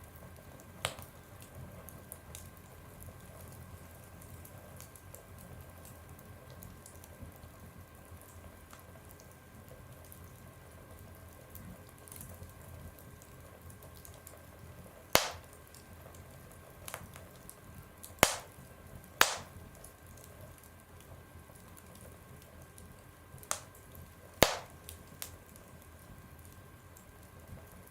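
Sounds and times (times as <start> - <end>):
wood fire crackling in a stove: 0.0 - 27.9
sharp fire pops: 15.2 - 15.6, 18.2 - 18.5, 19.2 - 19.6, 23.5 - 23.8, 24.4 - 25.3.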